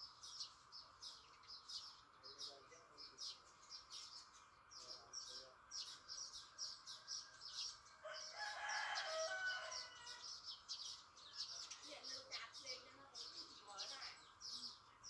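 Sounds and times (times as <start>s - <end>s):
rooster crowing: 8.0s - 10.4s.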